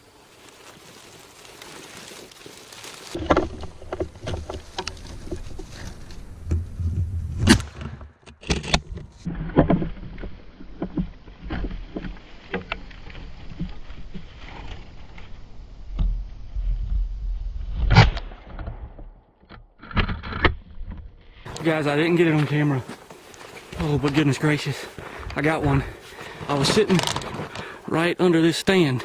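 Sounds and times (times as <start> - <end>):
handling noise rustling: 0.0 - 9.2, 21.5 - 29.0.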